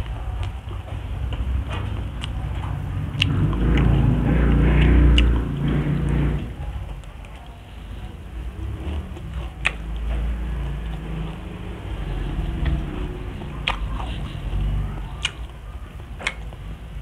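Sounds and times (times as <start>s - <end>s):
close chewing: 0.0s - 17.0s
wet mouth smacks: 13.6s - 14.1s.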